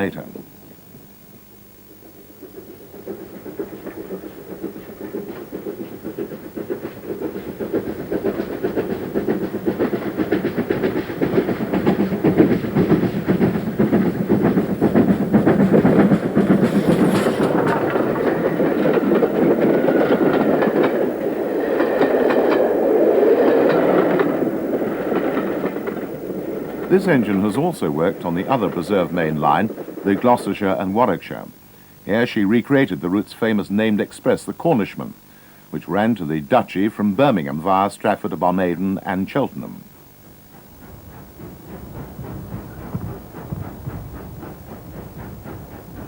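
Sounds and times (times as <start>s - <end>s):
high steam hiss: 0.0s - 46.0s
steam locomotive passing: 0.0s - 46.0s.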